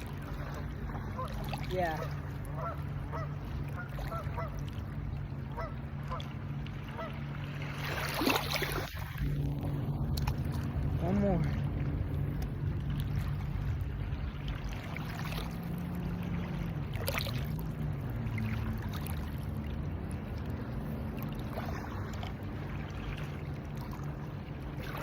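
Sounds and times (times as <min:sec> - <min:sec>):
water and wind noise: 0:00.0 - 0:25.0.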